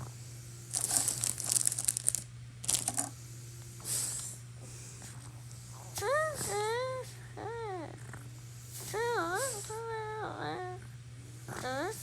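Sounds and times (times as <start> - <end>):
packaging tearing and crinkling: 0.7 - 3.1.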